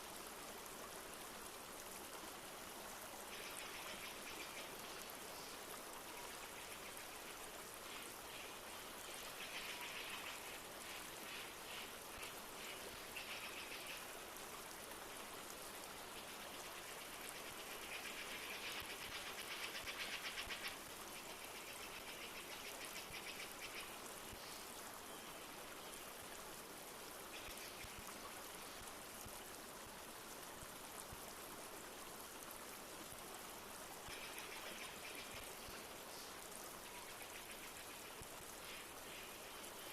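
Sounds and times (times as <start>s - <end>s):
light rain falling: 0.0s - 39.9s
river flowing: 0.0s - 39.9s.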